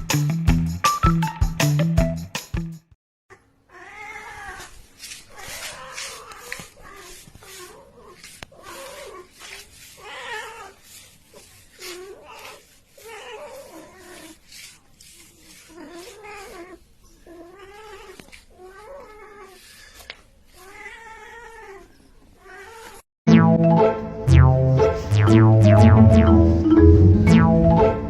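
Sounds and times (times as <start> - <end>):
cat yowling: 3.7 - 4.7, 5.3 - 11.0.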